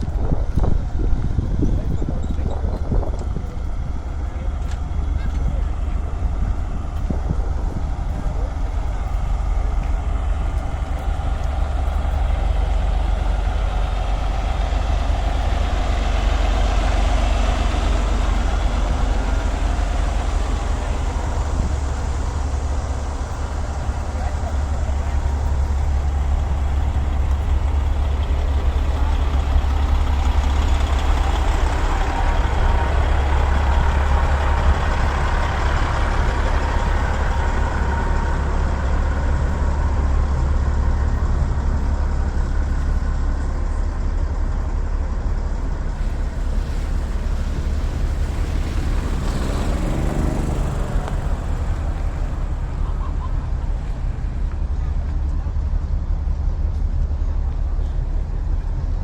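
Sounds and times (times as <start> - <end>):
heavy trucks running: 0.0 - 59.0
steady deep rumble: 0.0 - 59.0
passing vehicle pitched sound: 4.3 - 43.4, 45.8 - 54.8.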